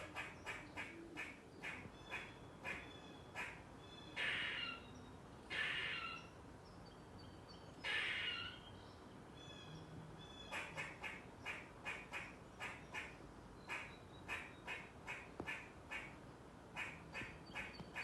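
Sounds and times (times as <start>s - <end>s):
squirrel harsh calls: 0.0s - 4.9s, 5.5s - 6.3s, 7.8s - 8.6s, 10.2s - 16.2s, 16.8s - 18.0s.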